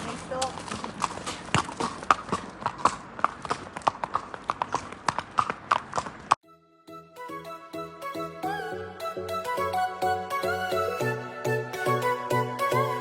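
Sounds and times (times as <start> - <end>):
horse hooves clip-clopping: 0.0 - 6.4
background music: 6.4 - 13.0.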